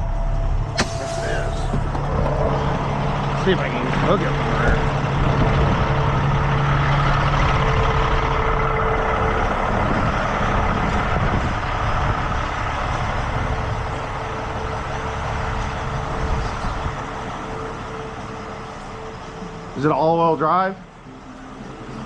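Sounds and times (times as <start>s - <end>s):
diesel engine running: 0.0s - 22.0s
mid-pitched whine: 0.0s - 22.0s.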